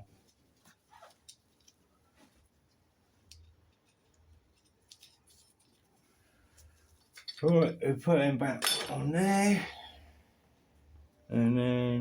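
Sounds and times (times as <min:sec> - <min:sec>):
metal nuts and screws clicking: 0:07.0 - 0:07.7.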